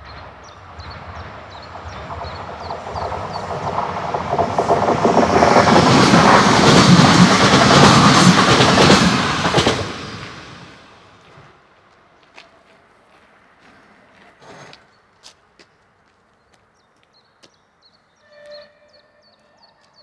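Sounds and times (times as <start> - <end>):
train rumbling past: 0.0 - 11.9.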